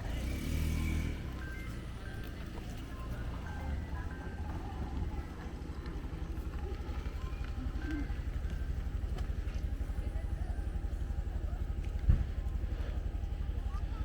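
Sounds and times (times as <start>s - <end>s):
small engine running: 0.0s - 3.2s
faint voices: 0.0s - 14.0s.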